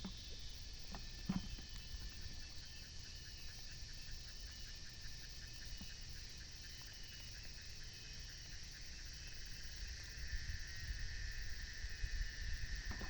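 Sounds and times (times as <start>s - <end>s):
insects chirring: 0.0s - 13.0s
wind rumbling on microphone: 9.6s - 13.0s.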